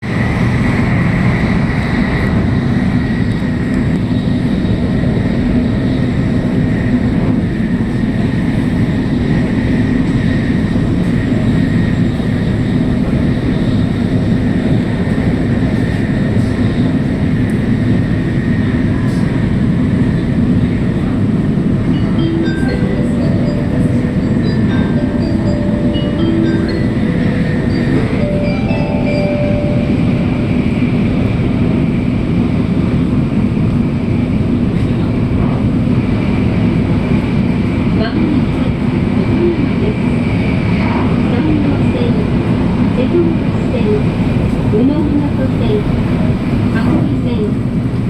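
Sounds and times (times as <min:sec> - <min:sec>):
train cabin rumble with hiss: 0:00.0 - 0:48.0
chime melody over speakers: 0:22.0 - 0:31.0.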